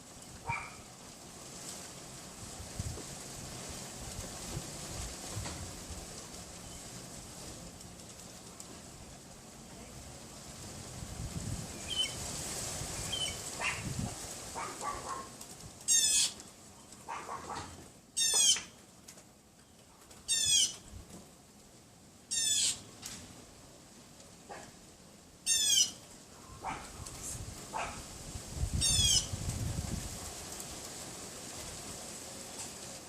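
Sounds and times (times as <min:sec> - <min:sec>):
small dog yapping: 0:00.4 - 0:00.8, 0:13.1 - 0:13.9, 0:14.6 - 0:15.3, 0:17.0 - 0:18.7, 0:26.6 - 0:27.0, 0:27.7 - 0:28.0.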